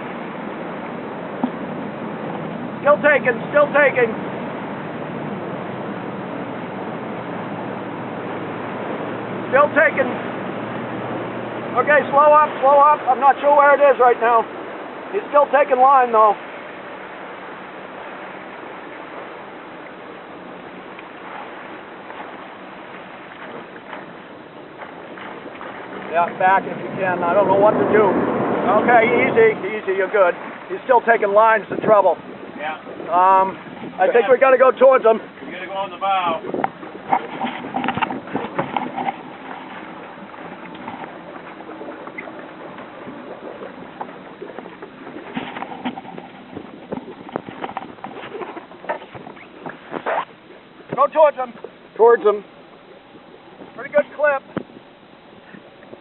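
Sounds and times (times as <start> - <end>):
water and wind rushing: 0.0 - 56.0.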